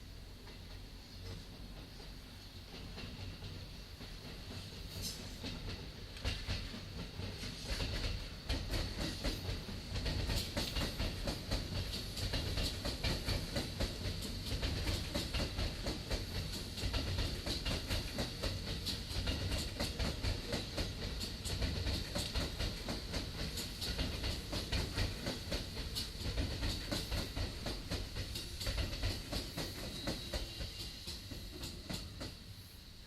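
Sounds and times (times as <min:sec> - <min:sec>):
train rumbling past: 0:00.0 - 0:33.0.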